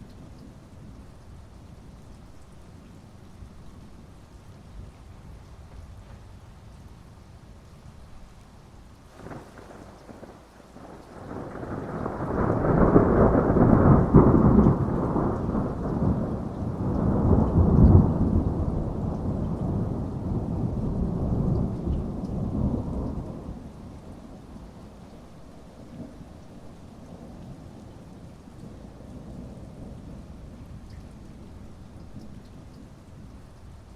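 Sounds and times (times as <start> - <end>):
steady rain: 0.0 - 33.9
thunder rumbling: 9.1 - 33.9.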